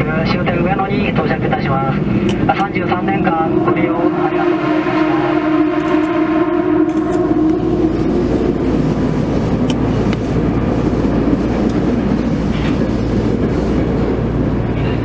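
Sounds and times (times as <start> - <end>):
subway train wheels rumbling: 0.0 - 15.0
sharp clicks: 2.2 - 2.8, 6.9 - 15.0.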